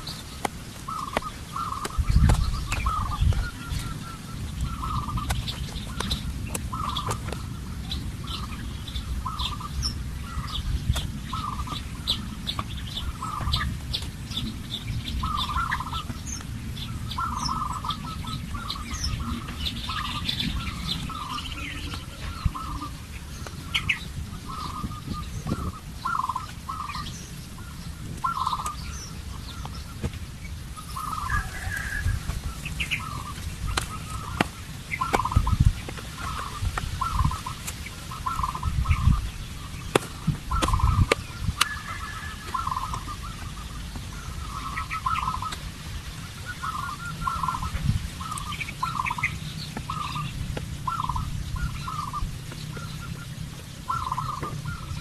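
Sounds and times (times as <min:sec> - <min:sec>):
higher bird chirps: 0:00.0 - 0:13.7, 0:30.8 - 0:45.6
birds calling: 0:00.0 - 0:55.0
steady low rumble: 0:00.0 - 0:55.0.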